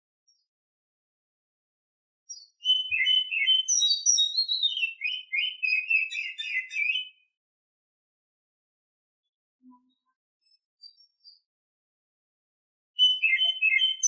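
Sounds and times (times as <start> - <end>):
bird singing whistled notes: 2.3 - 7.3, 13.0 - 14.0.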